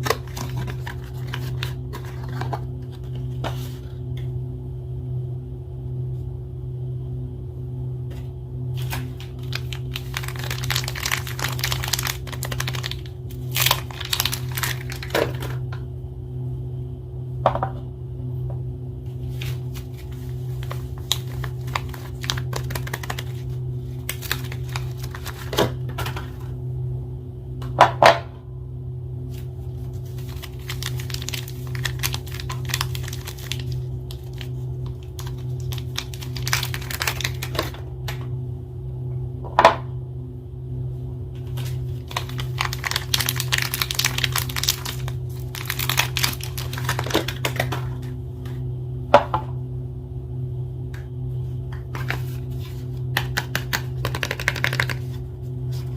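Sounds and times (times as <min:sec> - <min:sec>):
wrapper crinkling and tearing: 0:00.0 - 0:02.6, 0:08.8 - 0:15.6, 0:19.4 - 0:25.6, 0:30.0 - 0:37.8, 0:41.5 - 0:48.1
steady low hum: 0:00.0 - 0:55.9.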